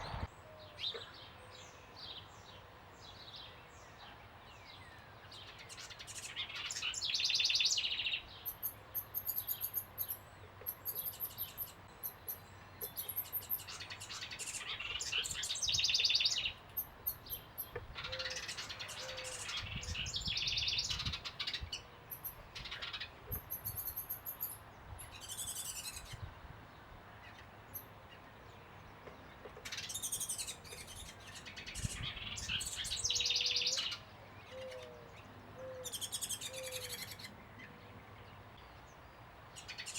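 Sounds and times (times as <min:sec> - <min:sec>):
small birds chattering trills: 0:04.6 - 0:39.9.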